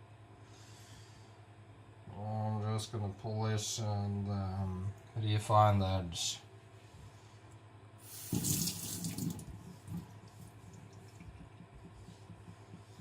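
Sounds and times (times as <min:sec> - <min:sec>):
water running from a tap: 0:08.0 - 0:11.6
faint water trickling: 0:08.1 - 0:13.0.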